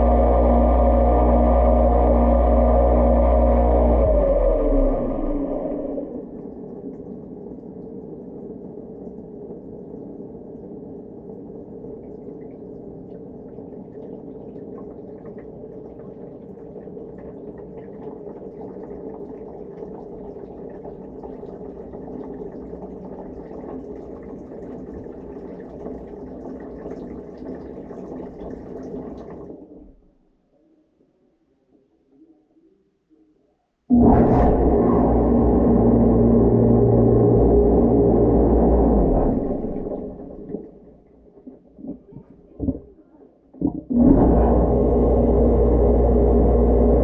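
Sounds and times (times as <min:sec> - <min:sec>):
dishwasher pump running: 0:00.0 - 0:06.4, 0:33.9 - 0:40.6, 0:43.9 - 0:47.0.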